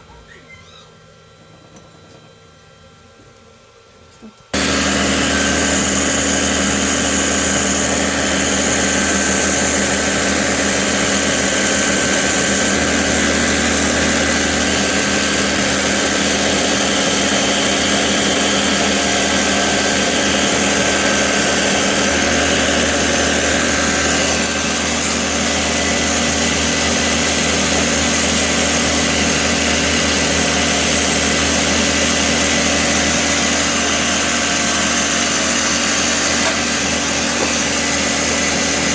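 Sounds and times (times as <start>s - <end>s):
belt sander running: 4.5s - 38.9s.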